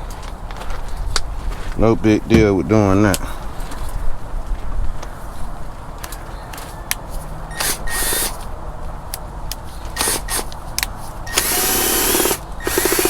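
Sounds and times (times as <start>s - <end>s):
power drill whine: 7.5s - 8.4s, 10.0s - 10.5s, 11.3s - 13.0s.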